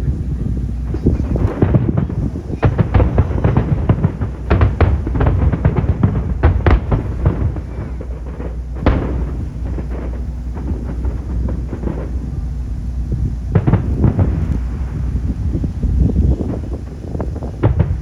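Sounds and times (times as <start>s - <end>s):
big firework boom: 0.0s - 18.0s
fireworks bursting and crackling: 0.0s - 18.0s
low rumble: 0.0s - 18.0s.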